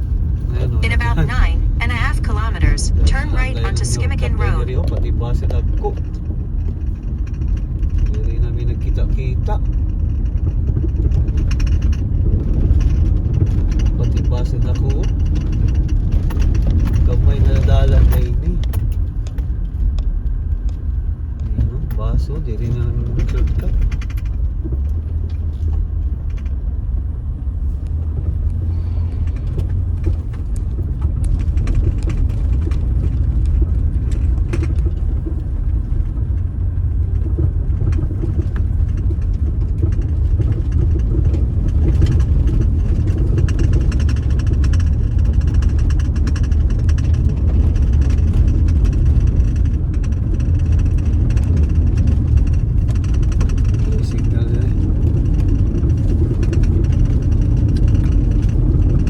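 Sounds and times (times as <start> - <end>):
car rumbling on unpaved road: 0.0 - 59.0.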